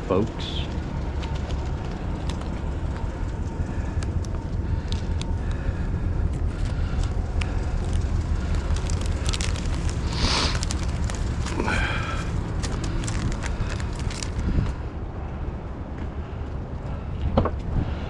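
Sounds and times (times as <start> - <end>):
truck engine and road noise: 0.0 - 18.0
small clicks and rattles: 0.4 - 5.6, 6.4 - 14.8.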